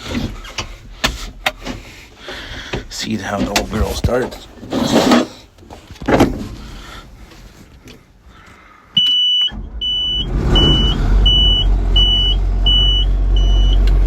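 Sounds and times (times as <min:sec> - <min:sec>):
high-pitched warning beeper: 0:09.0 - 0:13.8.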